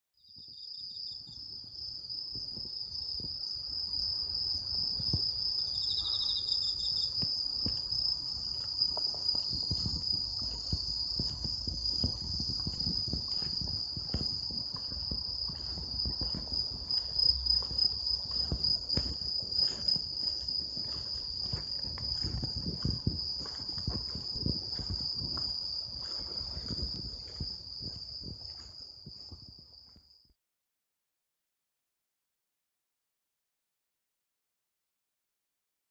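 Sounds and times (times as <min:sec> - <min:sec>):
insect pulsed song: 0:00.2 - 0:29.9
soft low thumps: 0:07.4 - 0:30.0.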